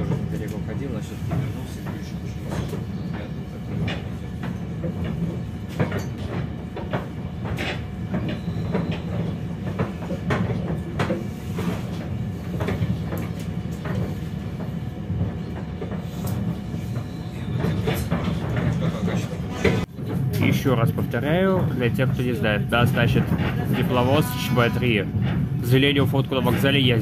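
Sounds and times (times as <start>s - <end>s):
railcar low rumble: 0.0s - 27.0s.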